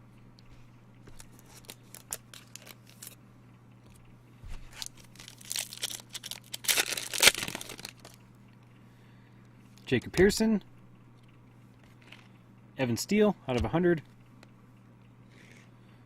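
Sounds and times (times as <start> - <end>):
foil wrapper tearing and crinkling: 1.2 - 3.2, 4.7 - 8.2.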